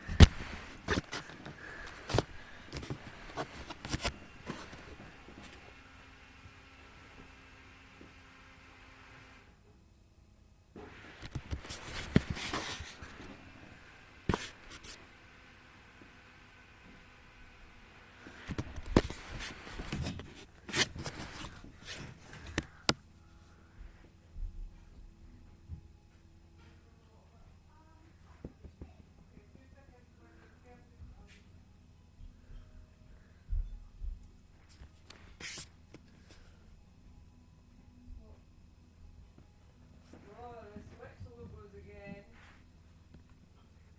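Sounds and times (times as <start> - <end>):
rustling and scraping: 0.0 - 5.8, 11.2 - 13.5, 18.2 - 24.1, 34.6 - 36.6.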